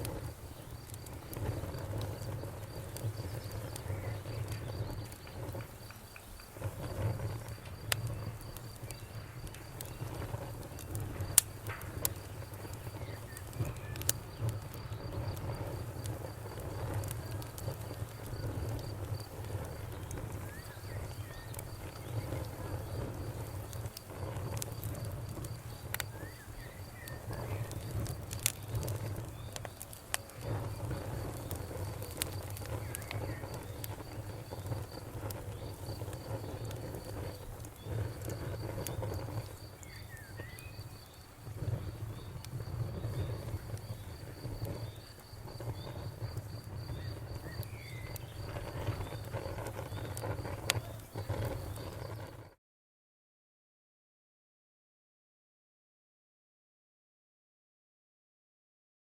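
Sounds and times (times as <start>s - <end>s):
crickets chirping: 0.0s - 52.5s
campfire flames rumbling: 0.0s - 52.6s
fire popping and crackling: 0.0s - 52.6s.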